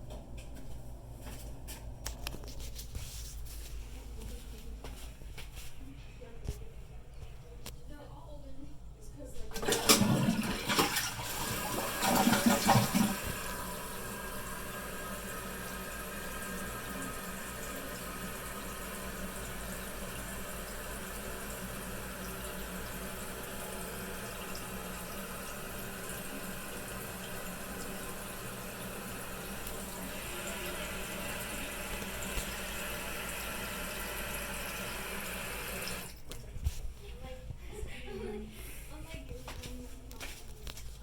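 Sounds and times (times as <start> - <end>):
toilet tank refilling hiss: 9.6 - 36.2.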